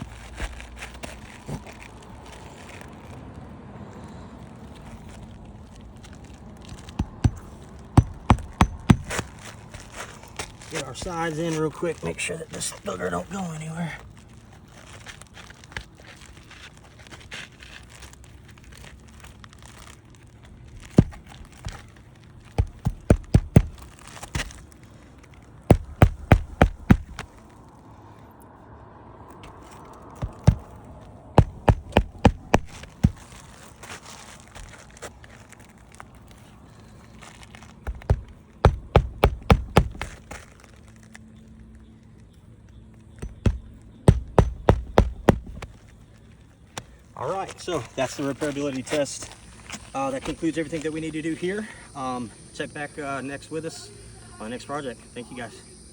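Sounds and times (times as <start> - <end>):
shingle rustling: 4.7 - 27.7, 29.2 - 41.7, 43.0 - 51.0
hammer driving nails: 7.0 - 9.2, 21.0 - 21.2, 22.6 - 23.9, 25.7 - 27.2, 30.2 - 30.7, 31.4 - 33.2, 37.9 - 40.2, 43.2 - 45.7.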